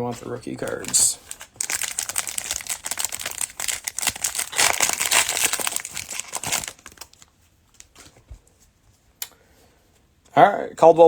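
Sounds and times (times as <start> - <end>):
cellophane wrapper crinkling: 0.6 - 8.1.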